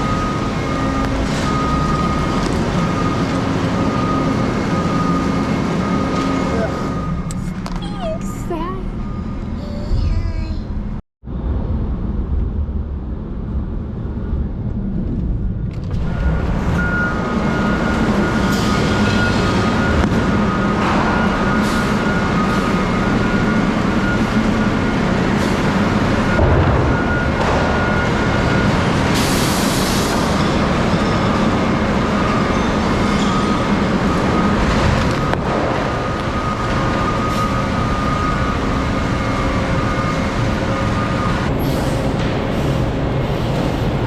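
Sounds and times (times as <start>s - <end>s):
vehicle engine and road noise: 0.0s - 44.0s.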